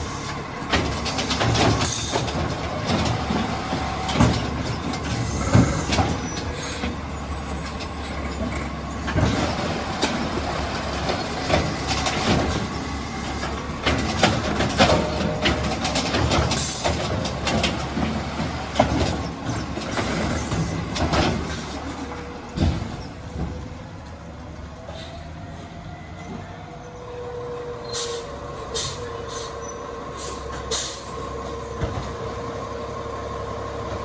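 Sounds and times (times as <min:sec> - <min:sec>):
garbage truck engine rumbling: 0:00.0 - 0:34.0
metal clanks and bangs: 0:00.6 - 0:07.0, 0:07.6 - 0:23.8.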